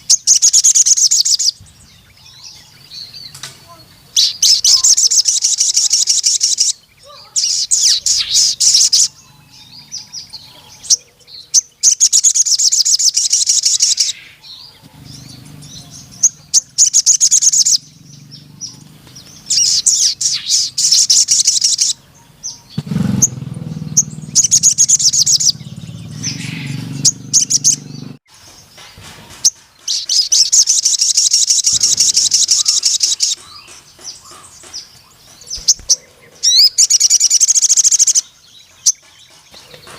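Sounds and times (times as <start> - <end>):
bird singing high trills: 0.0 - 39.9.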